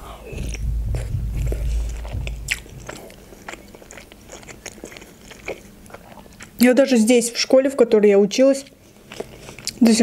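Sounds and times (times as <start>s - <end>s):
low rumble: 0.0s - 4.4s
chewing with wet mouth sounds: 0.2s - 7.2s, 8.6s - 10.0s.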